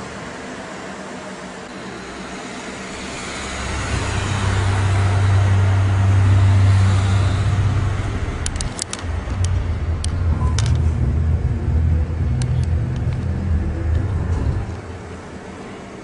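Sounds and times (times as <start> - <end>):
deep rumble with hiss: 0.7 - 16.0
sharp clicks: 8.4 - 10.9.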